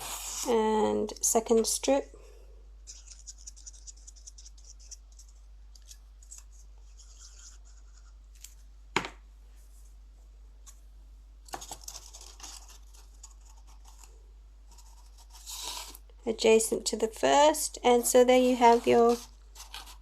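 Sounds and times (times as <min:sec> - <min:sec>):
card stock rustling and scraping: 0:11.5 - 0:16.0, 0:18.1 - 0:20.0.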